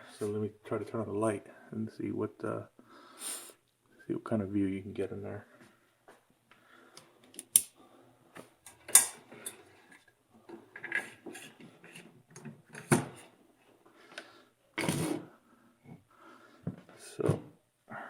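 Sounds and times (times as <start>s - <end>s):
tools clicking and clunking: 8.6s - 13.2s.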